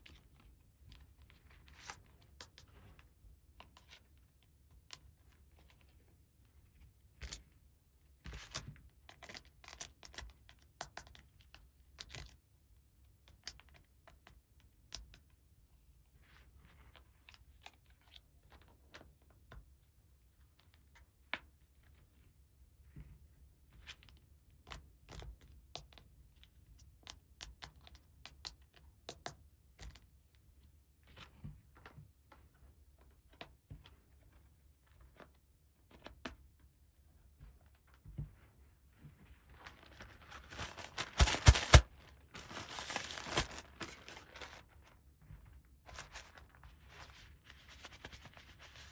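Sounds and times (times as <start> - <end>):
packaging tearing and crinkling: 40.0 - 44.6.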